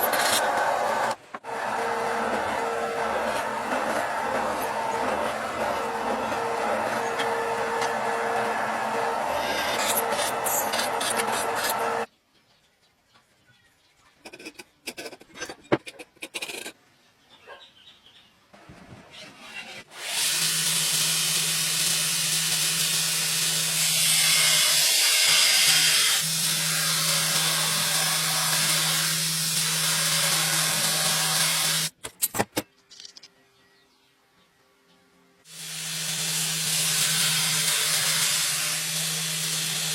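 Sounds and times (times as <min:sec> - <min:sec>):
workshop machine humming: 0:00.0 - 0:12.1.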